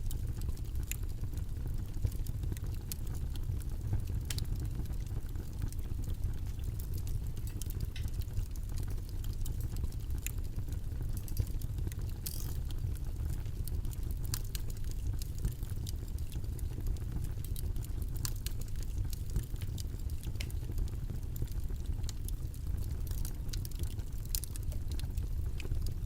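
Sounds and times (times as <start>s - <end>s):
low rumbling white noise: 0.0s - 26.0s
light clicks and ticks: 4.3s - 4.6s, 11.1s - 16.3s, 16.9s - 20.9s, 23.1s - 25.8s.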